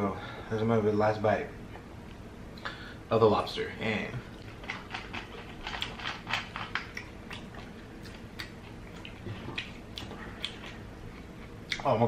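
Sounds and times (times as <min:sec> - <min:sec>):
wet chewing mouth clicks: 0:04.4 - 0:11.9.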